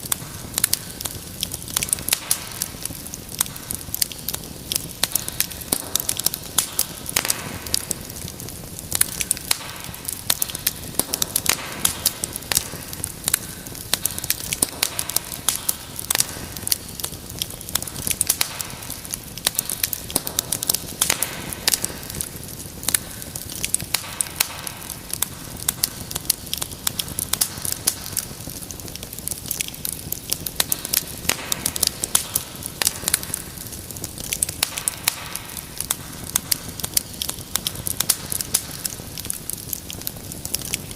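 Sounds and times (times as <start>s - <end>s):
fire crackling and popping: 0.0s - 40.9s
flame hiss: 0.0s - 40.9s.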